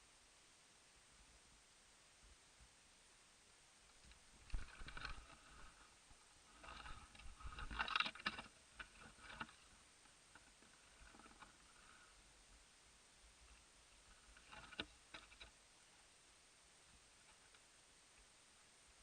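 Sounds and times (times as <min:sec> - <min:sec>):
rustling and scraping: 0:03.9 - 0:12.2, 0:13.4 - 0:15.6.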